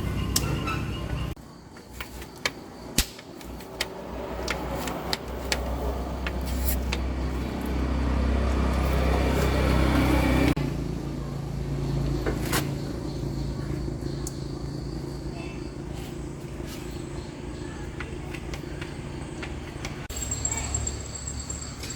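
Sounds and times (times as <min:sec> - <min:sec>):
sharp metallic clicks: 0:02.4 - 0:05.8
truck engine running: 0:03.6 - 0:21.9.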